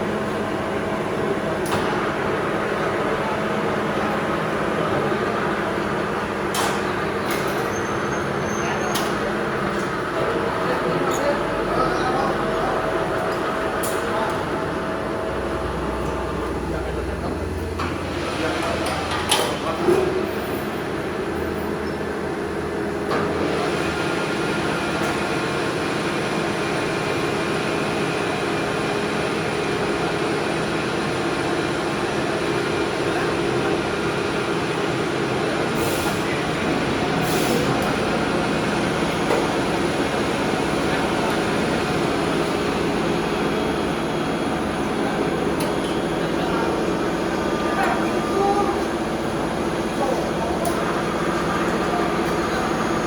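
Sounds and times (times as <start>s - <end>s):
lathe running: 34.6s - 53.0s.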